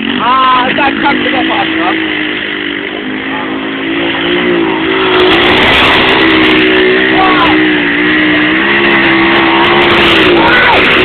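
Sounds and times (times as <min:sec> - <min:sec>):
small motorbike engine buzzing: 0:00.0 - 0:11.0.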